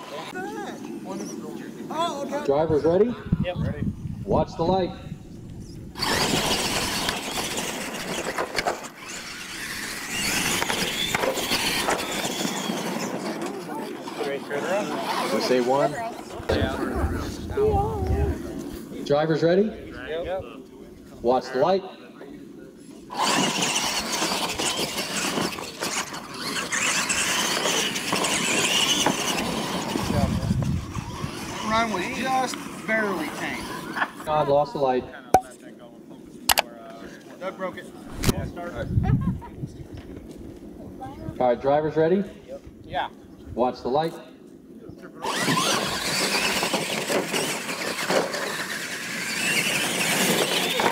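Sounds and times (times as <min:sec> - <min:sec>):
high whine of motors and gears: 0:04.6 - 0:18.6, 0:44.8 - 0:50.9
tyres on dirt: 0:05.4 - 0:19.0, 0:23.1 - 0:34.1, 0:45.2 - 0:50.9.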